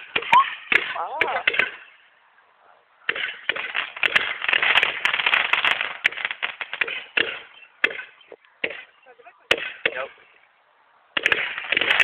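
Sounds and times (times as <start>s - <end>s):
firework crackling: 3.1s - 10.2s, 11.1s - 12.0s.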